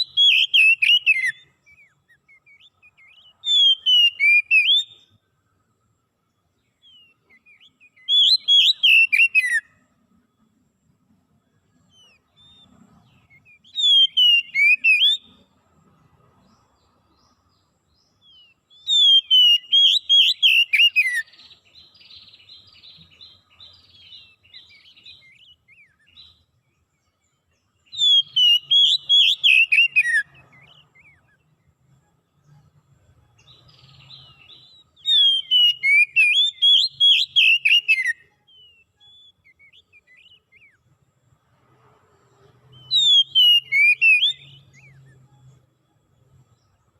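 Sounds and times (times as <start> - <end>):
soft scratchy bird twitter: 0.0 - 46.9
songbird whistling song: 0.0 - 46.9.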